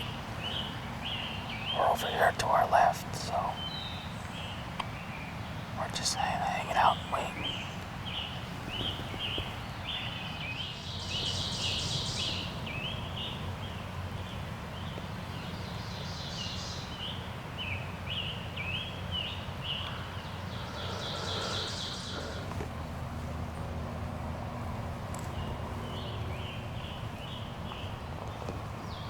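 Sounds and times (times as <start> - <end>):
songbirds chirping: 0.0 - 29.0
buzzy bird trills: 20.4 - 22.5.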